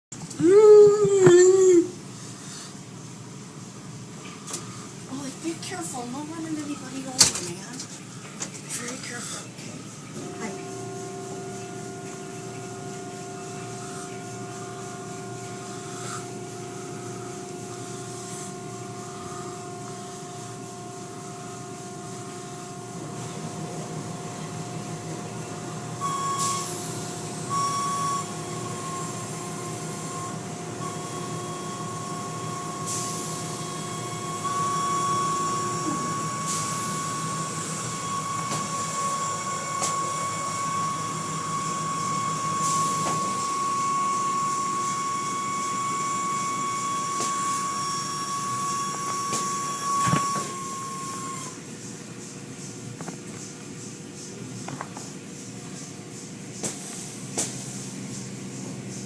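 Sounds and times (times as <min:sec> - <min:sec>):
car wash machinery drone: 0:00.1 - 0:59.0
whining motor tones: 0:04.4 - 0:51.7
high hiss bursts: 0:30.8 - 0:51.6.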